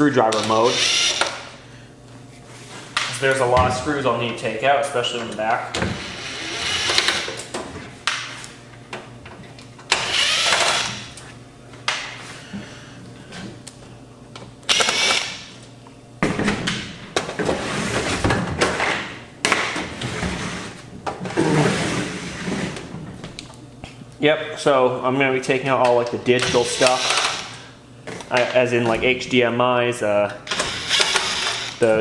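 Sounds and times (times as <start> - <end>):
impact driver bursts: 0.4 - 1.5, 14.7 - 15.5, 26.7 - 27.5, 30.5 - 31.8.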